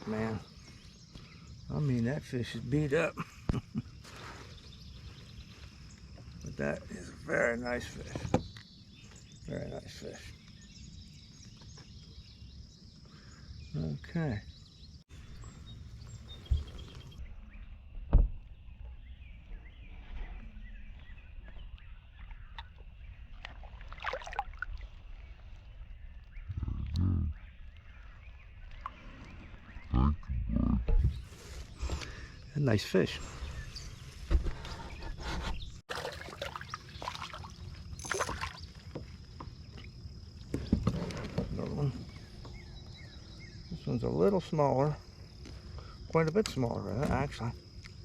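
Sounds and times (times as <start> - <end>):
faint bird chirps: 0.0 - 23.2
water splashes and drips: 21.5 - 27.0, 27.6 - 29.7, 35.9 - 40.5.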